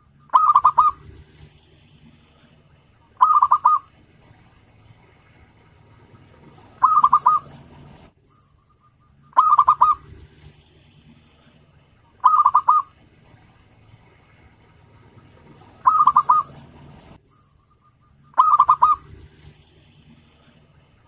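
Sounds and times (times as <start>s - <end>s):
dove cooing: 0.3s - 4.1s, 6.0s - 8.1s, 8.8s - 11.6s, 12.2s - 13.1s, 15.0s - 17.2s, 17.8s - 20.7s.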